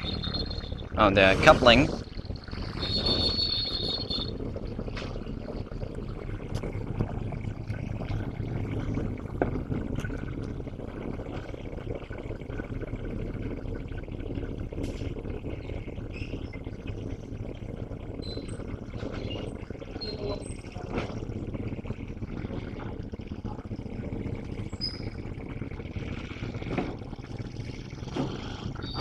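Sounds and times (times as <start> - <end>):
diesel locomotive engine rumbling: 0.0 - 13.4.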